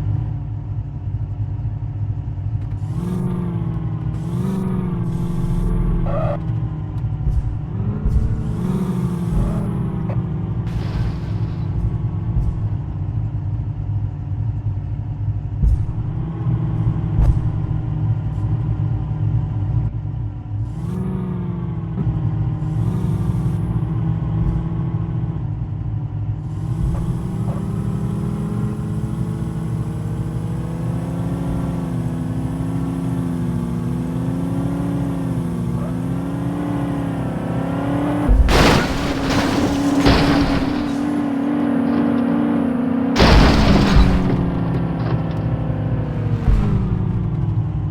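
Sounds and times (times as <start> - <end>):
vehicle engine running: 0.0 - 47.9
loud burst of noise: 10.7 - 11.9.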